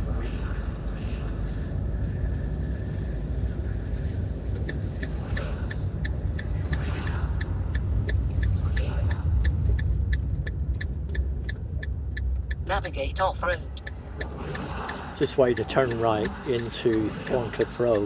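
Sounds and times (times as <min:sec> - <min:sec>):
engine and road noise rumbling: 0:00.0 - 0:18.0
turn signal ticking: 0:04.5 - 0:18.0.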